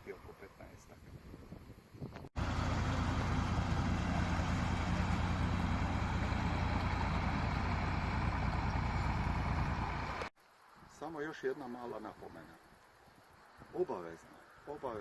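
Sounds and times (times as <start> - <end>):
tractor diesel engine running: 2.4 - 10.3.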